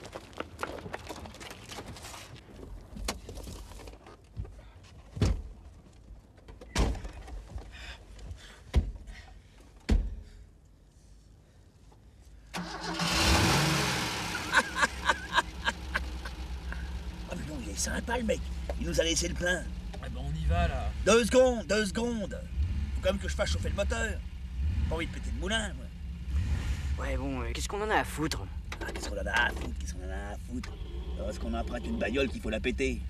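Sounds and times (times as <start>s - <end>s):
knocks and thumps: 8.7s - 9.1s
car engine starting and running: 12.4s - 33.0s.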